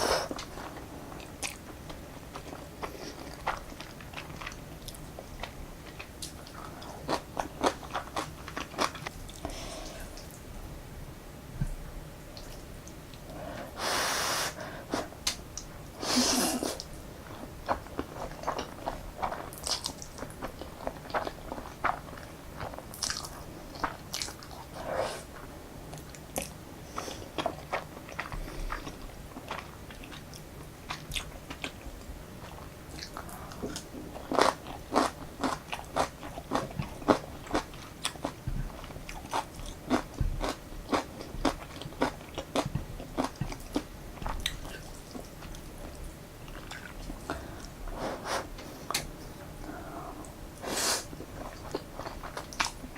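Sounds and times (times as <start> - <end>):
wet chewing and mouth clicks: 32.4 - 47.8.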